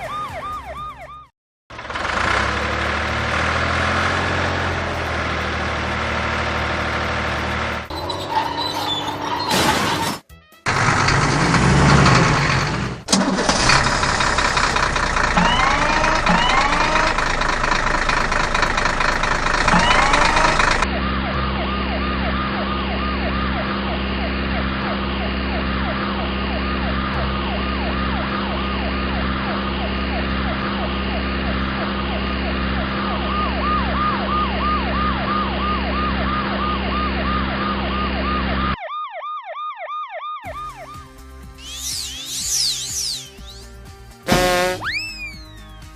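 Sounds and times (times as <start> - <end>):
cartoon siren: 0.0 - 1.3, 15.4 - 17.2, 19.7 - 43.7, 44.3 - 45.9
engine hum: 1.7 - 9.6, 10.7 - 38.7, 41.4 - 45.9.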